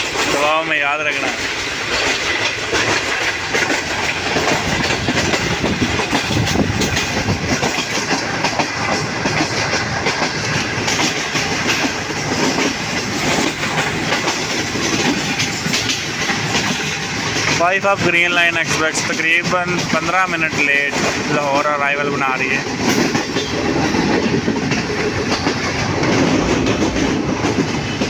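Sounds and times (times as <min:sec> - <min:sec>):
train rumble: 0:00.0 - 0:28.0
wheels clattering over rail joints: 0:00.0 - 0:28.0.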